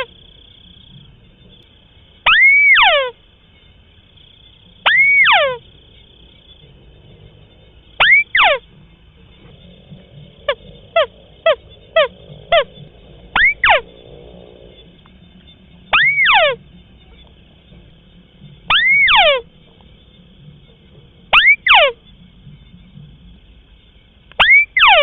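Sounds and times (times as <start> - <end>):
bird calling falling whistles: 2.2 - 3.2, 4.8 - 5.6, 8.0 - 8.6, 13.4 - 13.9, 15.9 - 16.6, 18.7 - 19.5, 21.3 - 22.0, 24.4 - 25.0.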